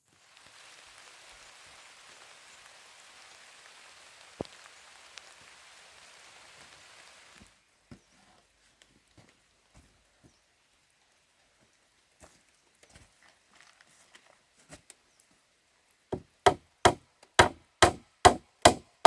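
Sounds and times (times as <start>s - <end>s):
steady rain falling: 0.0s - 12.4s
sharp tap: 16.2s - 18.9s.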